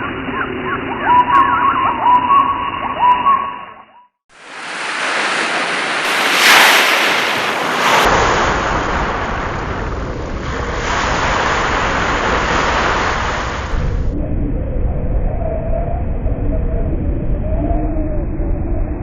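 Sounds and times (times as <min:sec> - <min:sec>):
loud rushing noise: 0:04.4 - 0:14.2
deep rumble: 0:04.5 - 0:19.0.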